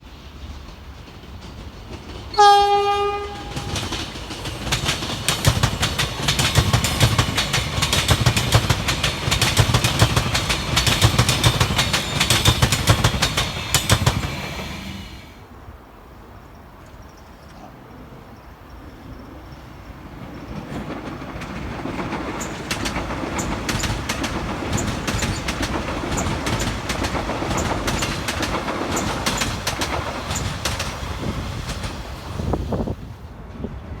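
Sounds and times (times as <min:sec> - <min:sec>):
train wheels clicking over rail joints: 0:00.1 - 0:15.4, 0:20.1 - 0:33.8
train horn blast: 0:02.3 - 0:03.9.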